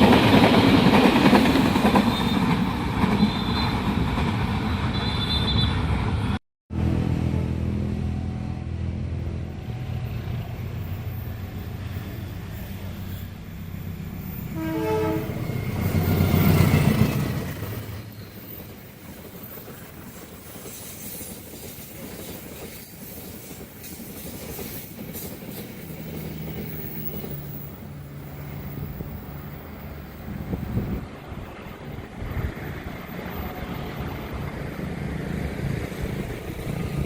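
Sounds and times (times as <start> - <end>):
train passing at speed: 0.0 - 37.0
train horn blast: 14.5 - 16.4.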